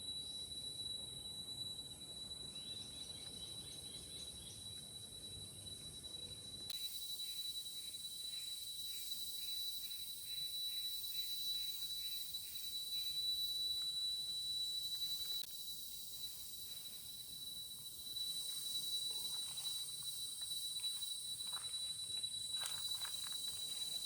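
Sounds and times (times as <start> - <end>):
high insect hiss: 0.0 - 24.0
insect chorus drone: 0.0 - 24.0
pulsing insect call: 0.0 - 24.0.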